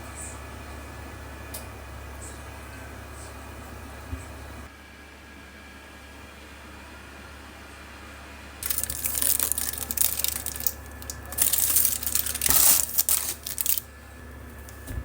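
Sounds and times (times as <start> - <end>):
steady low hum: 0.0 - 5.3, 6.1 - 15.0
crinkling and rustling: 8.6 - 13.9.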